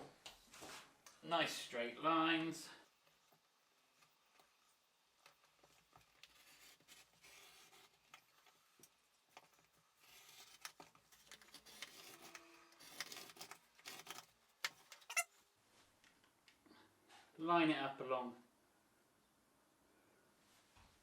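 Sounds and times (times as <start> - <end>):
craft knife scratching through card: 5.8 - 8.3, 10.0 - 14.3.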